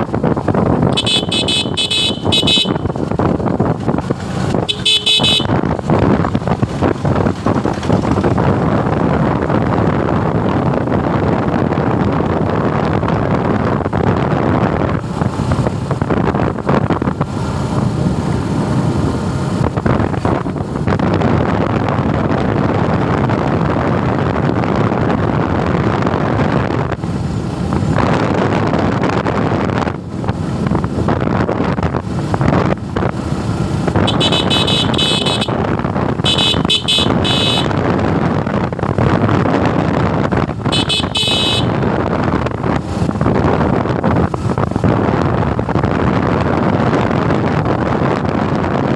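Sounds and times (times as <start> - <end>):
motorcycle engine running: 0.0 - 48.7
wind on microphone: 0.0 - 48.9
vehicle horn honking: 0.9 - 3.0, 4.6 - 5.7, 34.0 - 37.8, 40.7 - 41.8.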